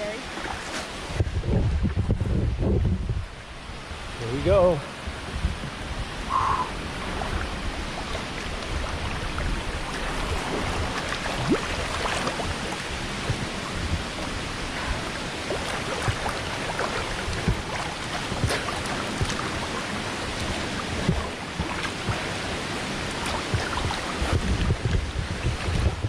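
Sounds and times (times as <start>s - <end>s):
running water rushing: 0.0s - 26.0s
water splashing from swimming: 5.7s - 26.0s.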